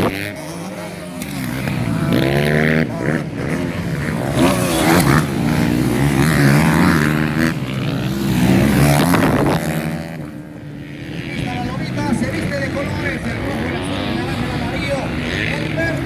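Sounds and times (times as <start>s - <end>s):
motocross bike engines revving: 0.0s - 16.0s.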